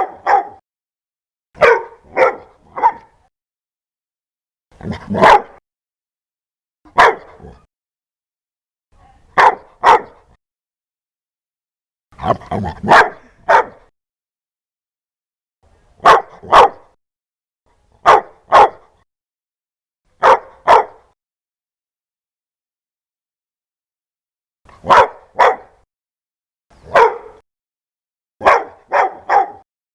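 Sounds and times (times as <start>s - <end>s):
dog barking loudly: 0.0s - 0.6s, 1.6s - 3.2s, 4.8s - 5.6s, 6.9s - 7.7s, 9.4s - 10.4s, 12.2s - 13.9s, 16.0s - 17.0s, 18.0s - 19.0s, 20.2s - 21.2s, 24.8s - 25.8s, 26.8s - 27.4s, 28.4s - 29.6s.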